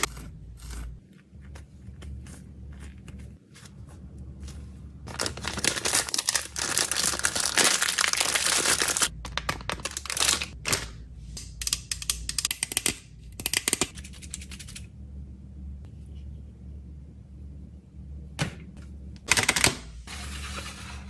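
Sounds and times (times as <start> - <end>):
plastic packaging crinkling: 5.0 - 10.8.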